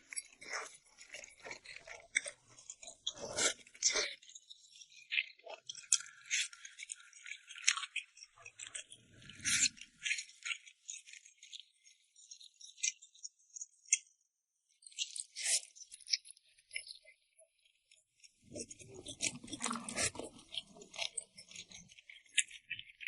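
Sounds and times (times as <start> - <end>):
eating noodles: 18.5 - 21.7.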